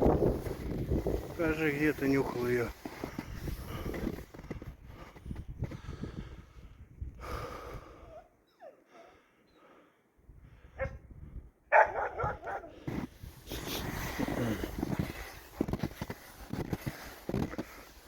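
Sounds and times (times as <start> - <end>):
dog whining: 8.4 - 9.1
dog barking: 10.8 - 11.0, 11.7 - 12.8.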